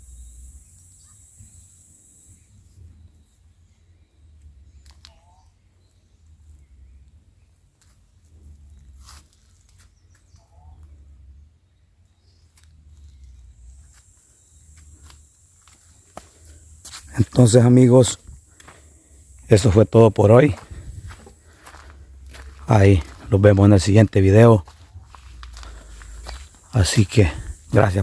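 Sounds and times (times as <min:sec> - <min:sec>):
bird chirps: 0:00.0 - 0:07.7
low rumble on microphone: 0:20.5 - 0:28.0.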